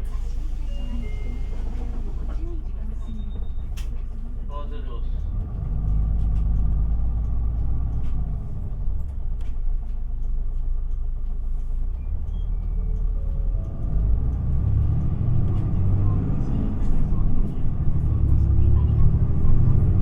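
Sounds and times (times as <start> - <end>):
bus diesel engine drone: 0.0 - 20.0
road noise: 3.4 - 20.0.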